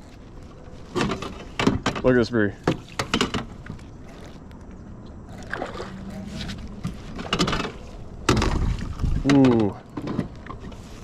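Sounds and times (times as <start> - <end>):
faint steady hum: 0.0 - 11.0
water lapping around kayak: 2.6 - 11.0
small water splashes: 5.3 - 6.6.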